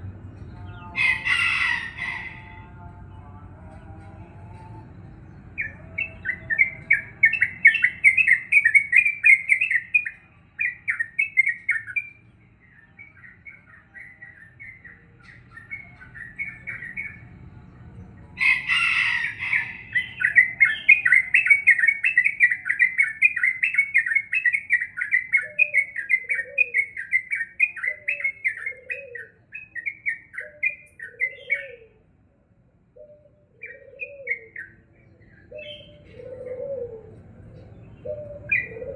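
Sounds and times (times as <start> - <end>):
dove cooing: 0.0 - 2.9, 5.6 - 12.1, 18.4 - 32.1, 32.9 - 38.9
bulbul chattering song: 0.0 - 32.2, 32.9 - 38.9.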